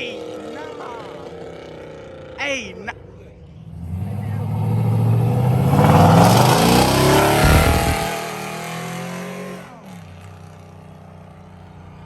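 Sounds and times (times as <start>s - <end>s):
steady engine hum: 3.4s - 8.1s
car accelerating hard: 3.7s - 8.4s.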